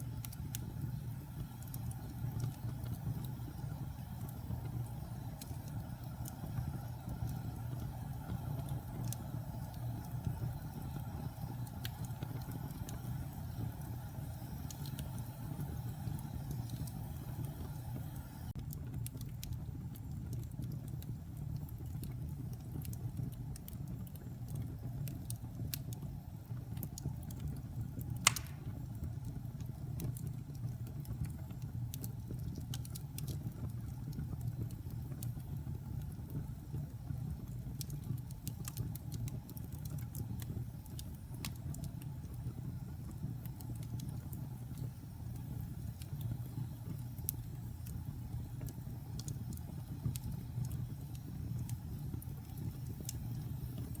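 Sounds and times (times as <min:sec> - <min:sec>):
fire crackling: 0:00.0 - 0:54.0
fire flames rumbling: 0:00.0 - 0:54.0
loud sharp pop: 0:28.3 - 0:28.7.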